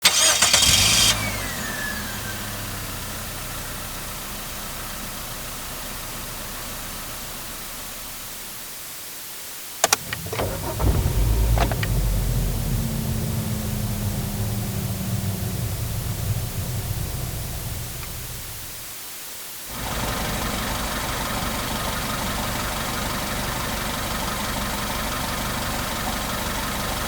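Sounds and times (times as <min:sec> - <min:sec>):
engine cranking: 0:00.0 - 0:01.9, 0:09.8 - 0:18.8
car engine idling: 0:00.0 - 0:08.7, 0:09.8 - 0:18.9, 0:19.7 - 0:27.0
car engine starting: 0:00.0 - 0:08.7, 0:09.8 - 0:18.9, 0:19.7 - 0:27.0
sharp clicks: 0:09.8 - 0:12.0.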